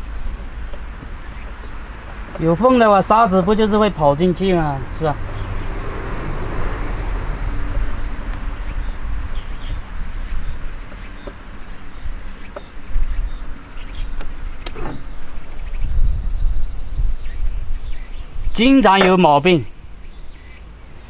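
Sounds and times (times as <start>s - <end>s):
insects calling: 0.0s - 21.0s
low rumble: 1.2s - 10.3s.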